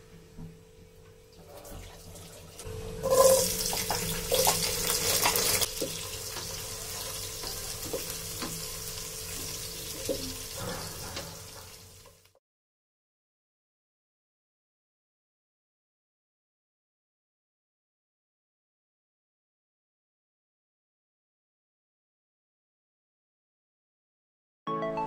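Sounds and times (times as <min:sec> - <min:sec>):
garlic sizzling in hot oil: 0:03.0 - 0:12.4.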